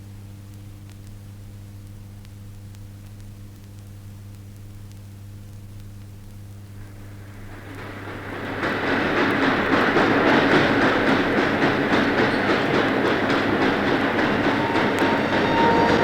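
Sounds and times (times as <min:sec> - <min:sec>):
train wheels clattering on rails: 0:07.1 - 0:16.0.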